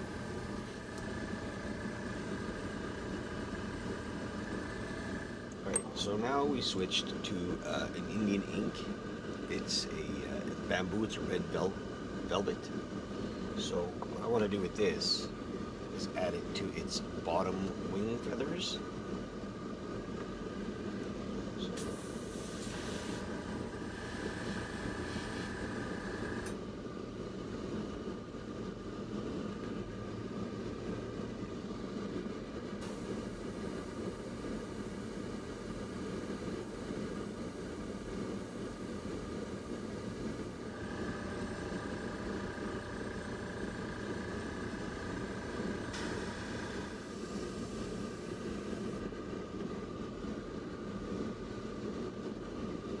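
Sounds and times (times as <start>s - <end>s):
air compressor hum: 0.0s - 18.8s, 20.7s - 26.6s, 32.8s - 49.1s
airbrush spray hiss: 21.8s - 26.2s, 32.8s - 42.4s, 45.6s - 48.9s.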